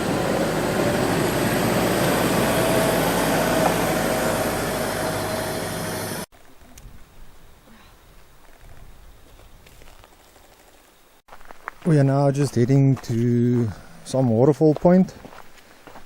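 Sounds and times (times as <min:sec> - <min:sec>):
vehicle engine and road noise: 0:00.0 - 0:06.3.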